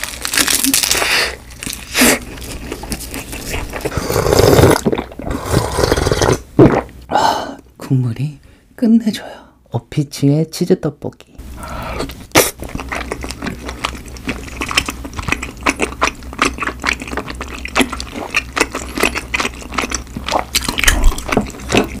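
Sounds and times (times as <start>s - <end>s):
low steady hum: 0.0s - 22.0s
mouth chewing sticky food: 0.2s - 7.0s, 12.0s - 22.0s.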